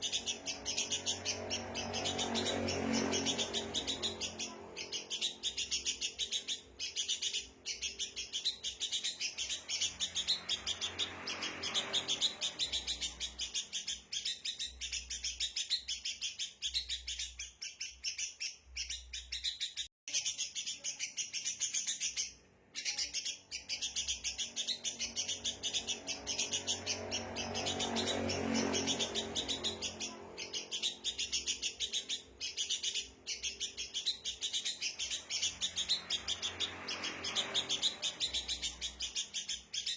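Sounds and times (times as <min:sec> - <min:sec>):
birds chattering: 0:00.0 - 0:39.9.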